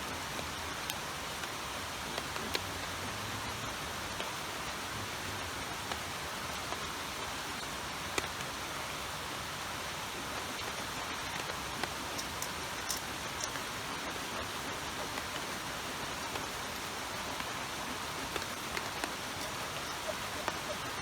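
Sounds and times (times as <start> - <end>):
sharp ticks: 12.1 - 13.7.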